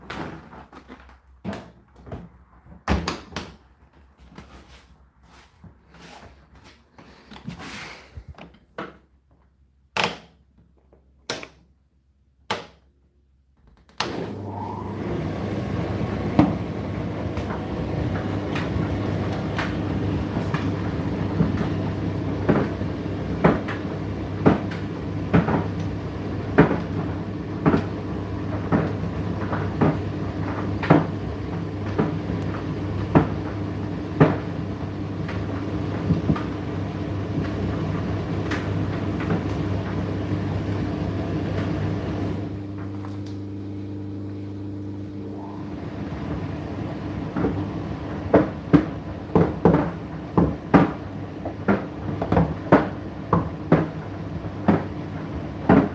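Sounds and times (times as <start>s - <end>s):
tumble dryer motor hum: 14.0s - 55.9s.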